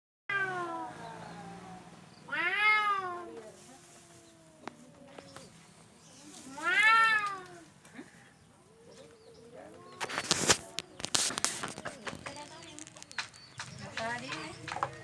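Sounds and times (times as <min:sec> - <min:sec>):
cats yowling and growling: 0:00.3 - 0:05.6, 0:06.4 - 0:07.7.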